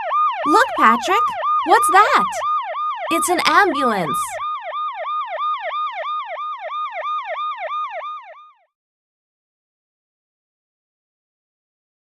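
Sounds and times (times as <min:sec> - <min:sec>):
ambulance siren yelping: 0:00.0 - 0:08.5.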